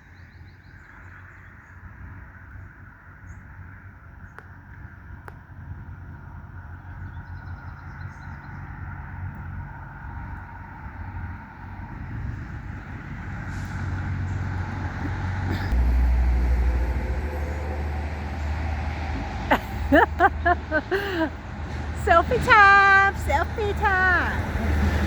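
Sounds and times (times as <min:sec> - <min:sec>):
vehicle engine and tyre noise: 0:00.0 - 0:25.0
heavy low rumble: 0:10.1 - 0:25.0.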